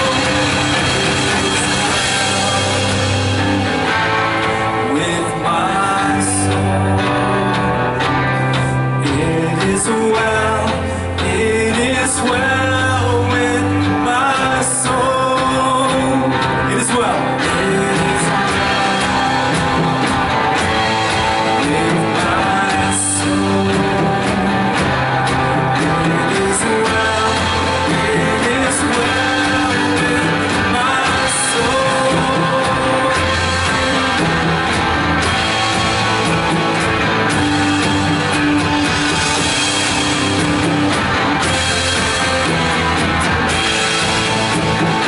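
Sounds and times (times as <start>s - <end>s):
indistinct sung vocals: 0.0s - 3.9s, 4.6s - 8.0s, 8.8s - 34.8s
live band with guitars and drums: 0.0s - 45.0s.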